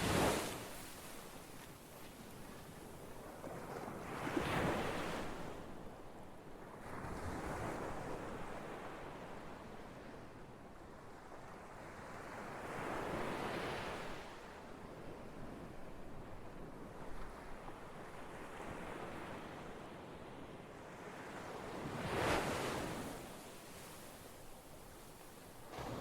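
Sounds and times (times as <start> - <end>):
ocean waves washing on shore: 0.0 - 5.6, 21.0 - 26.0.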